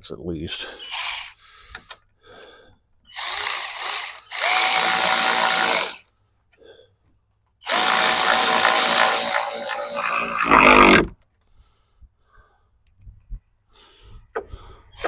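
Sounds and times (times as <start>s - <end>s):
electric drill motor whine: 3.1s - 6.0s, 7.6s - 11.1s.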